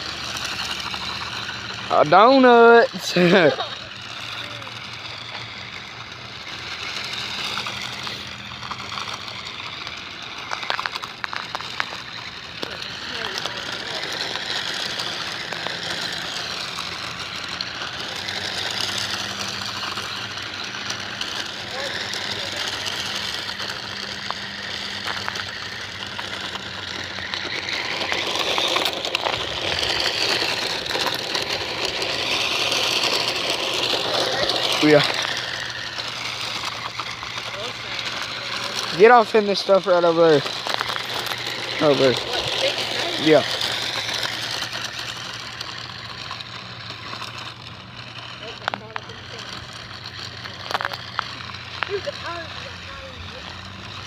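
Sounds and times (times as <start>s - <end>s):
rc car tyres and motor hissing: 0.0s - 54.0s
sharp ticks: 0.0s - 54.0s.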